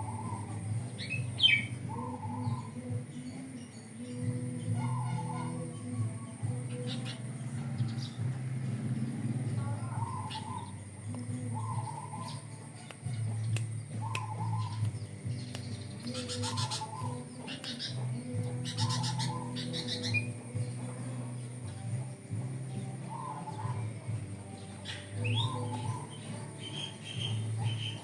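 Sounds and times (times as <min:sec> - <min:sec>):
bird singing whistled phrase: 0:00.0 - 0:02.8, 0:14.0 - 0:18.0, 0:24.8 - 0:28.0
low steady hum: 0:00.0 - 0:26.6
rapid bird chattering: 0:09.1 - 0:21.7.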